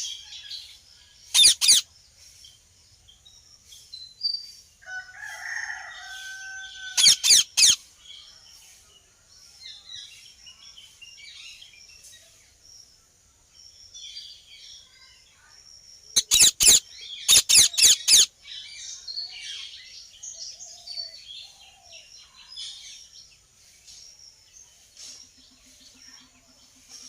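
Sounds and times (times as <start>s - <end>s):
birds chirping: 0.0s - 4.6s, 5.2s - 8.6s, 13.6s - 27.0s
parrots screeching: 1.3s - 1.8s, 6.4s - 7.8s, 16.2s - 18.3s.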